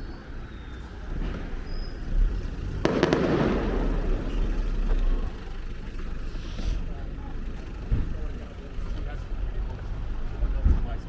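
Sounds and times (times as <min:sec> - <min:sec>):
low background rumble: 0:00.0 - 0:11.0
firework bang with crackling tail: 0:01.2 - 0:06.4.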